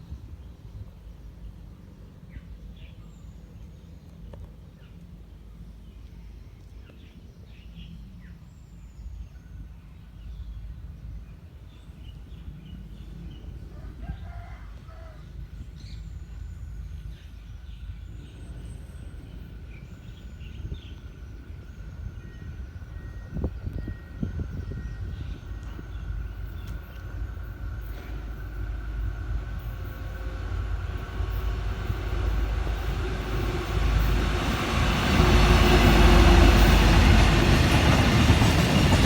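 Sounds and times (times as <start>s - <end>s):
rooster crowing: 13.8s - 15.2s.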